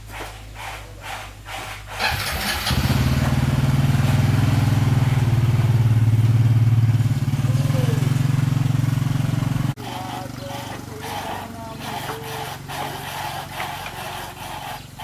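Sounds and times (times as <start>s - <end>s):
small motorcycle engine idling: 2.0s - 13.0s.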